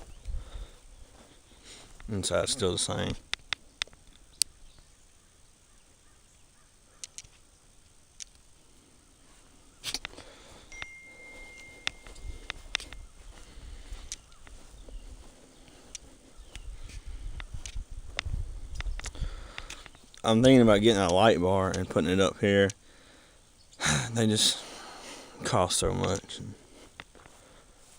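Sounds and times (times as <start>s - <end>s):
footsteps and handling noise: 0.0s - 4.9s, 9.3s - 21.9s, 26.0s - 27.9s
faint clicks: 3.2s - 4.6s, 7.0s - 8.5s, 14.0s - 14.6s, 17.4s - 20.3s.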